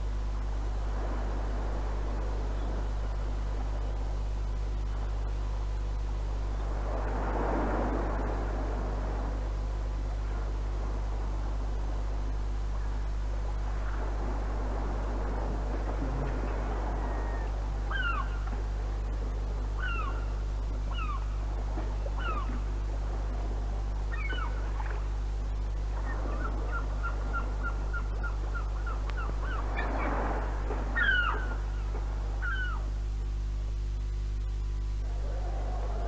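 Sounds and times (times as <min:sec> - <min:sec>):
low electrical hum: 0:00.0 - 0:36.0
birds calling: 0:15.9 - 0:18.7, 0:19.7 - 0:22.7, 0:24.1 - 0:25.1, 0:25.9 - 0:33.0.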